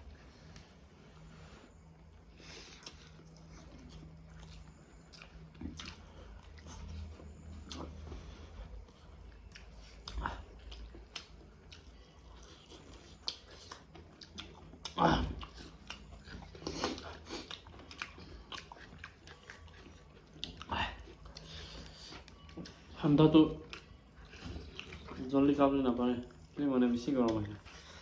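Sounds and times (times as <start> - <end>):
close-up chewing: 0.0 - 28.0.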